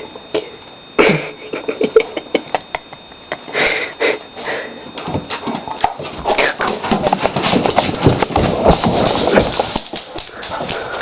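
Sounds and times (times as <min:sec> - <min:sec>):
dog paws scrabbling at disc: 0:05.0 - 0:11.0.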